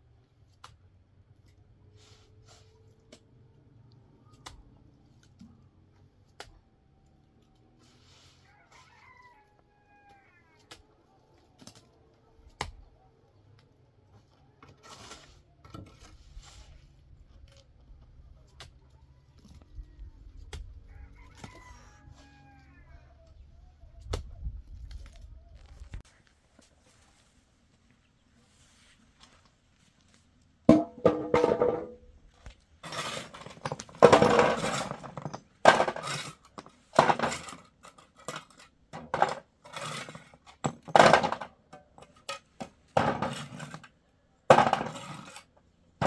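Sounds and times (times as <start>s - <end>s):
rooster crowing: 20.9s - 23.2s.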